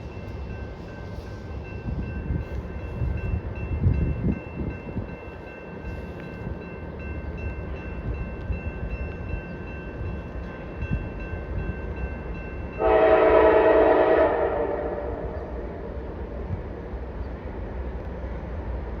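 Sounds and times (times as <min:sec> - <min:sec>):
freight locomotives rumbling past: 0:00.0 - 0:19.0
locomotive air horn blast: 0:12.8 - 0:15.6.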